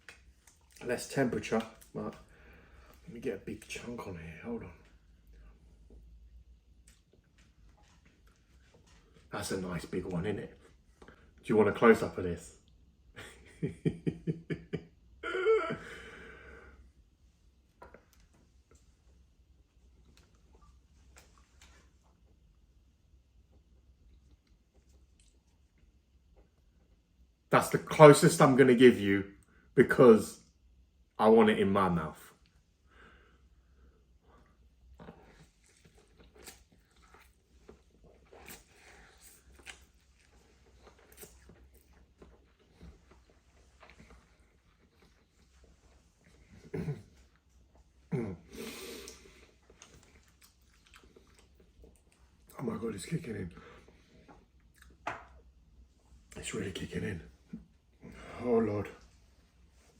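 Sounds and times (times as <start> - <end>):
man chewing noodles: 34.4 - 52.5.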